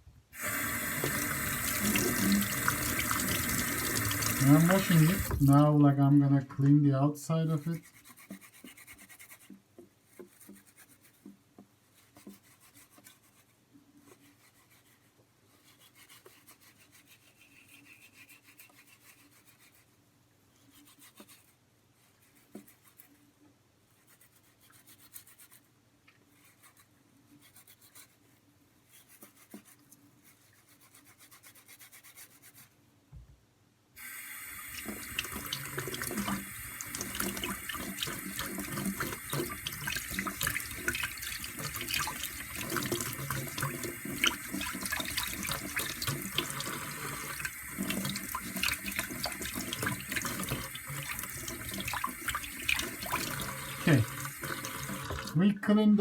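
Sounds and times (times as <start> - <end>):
tap water running into sink: 0.4 - 5.7, 34.0 - 55.4
potatoes rubbed by hand: 0.5 - 5.8, 7.4 - 20.0, 23.9 - 32.8.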